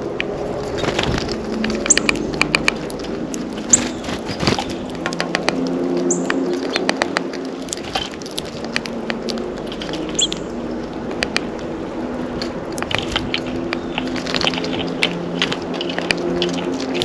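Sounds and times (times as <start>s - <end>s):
beaks and feet tapping feeder: 1.3s - 17.0s
high bird chirp: 1.8s - 5.1s, 6.0s - 6.8s, 9.9s - 10.8s.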